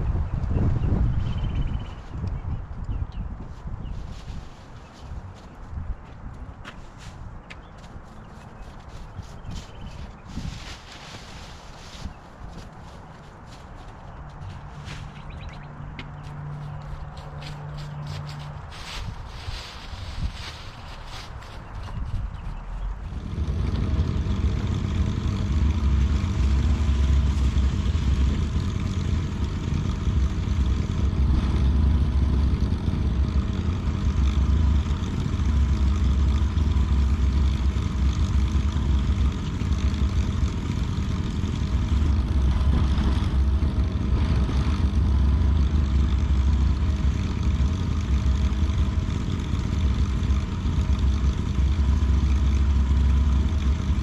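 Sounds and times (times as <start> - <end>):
lawn mower engine running: 16.2 - 54.0.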